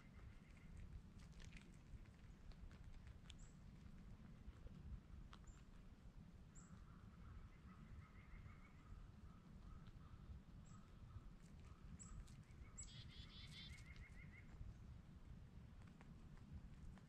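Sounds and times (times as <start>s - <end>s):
distant songbird trilling: 12.0s - 14.5s.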